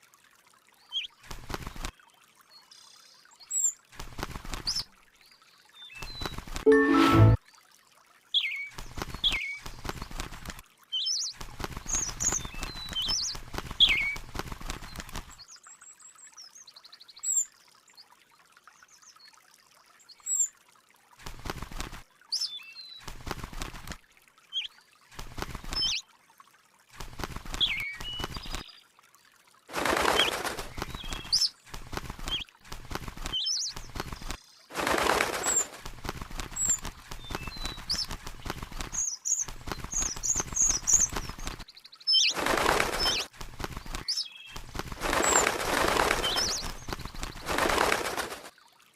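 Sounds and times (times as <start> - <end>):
bird chirping: 36.6 - 43.2, 44.0 - 47.6.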